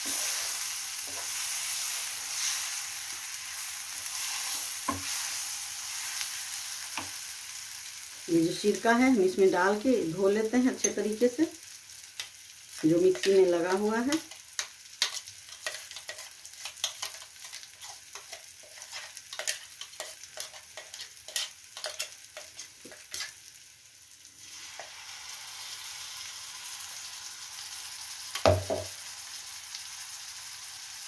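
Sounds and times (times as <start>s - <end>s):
steady sizzle: 0.0s - 31.0s
paste crackling in hot fat: 13.2s - 23.5s.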